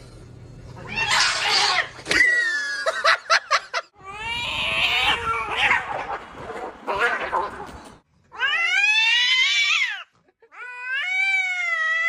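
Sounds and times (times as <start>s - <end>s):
cats yowling and fighting: 0.7s - 2.7s, 4.0s - 7.7s, 8.3s - 12.0s.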